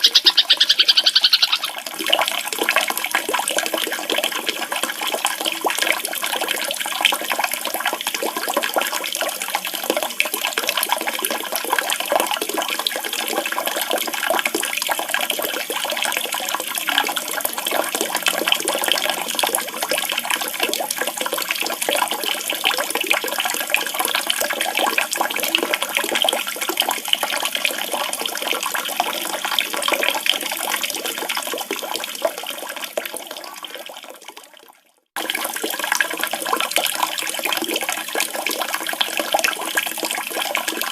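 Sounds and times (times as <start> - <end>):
water flowing and splashing: 0.0 - 40.9.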